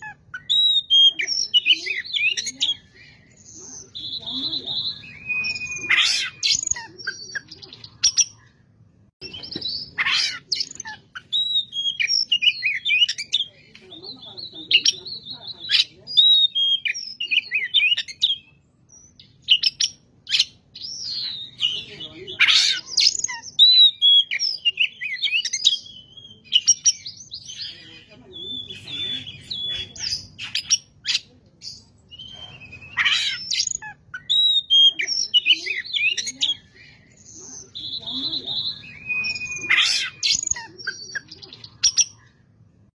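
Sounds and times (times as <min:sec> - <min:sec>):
bird singing whistles and chirps: 0:00.4 - 0:08.4, 0:23.0 - 0:42.2.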